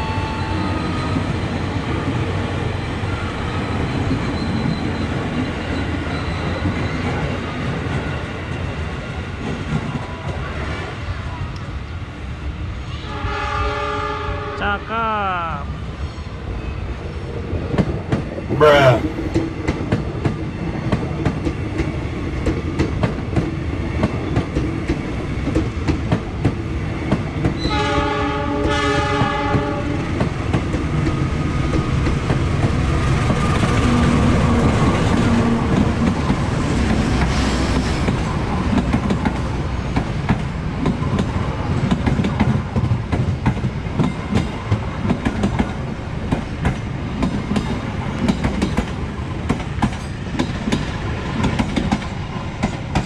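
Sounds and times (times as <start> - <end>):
diesel train passing: 0.0 - 53.0
electric train running past: 0.0 - 53.0
train horn blasts: 13.0 - 14.8, 27.6 - 30.0.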